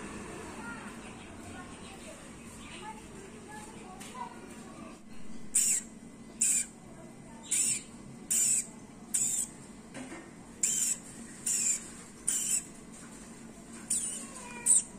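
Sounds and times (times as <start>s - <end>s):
small bird calling: 5.5s - 6.8s, 7.4s - 9.6s, 10.6s - 12.7s, 13.8s - 14.9s.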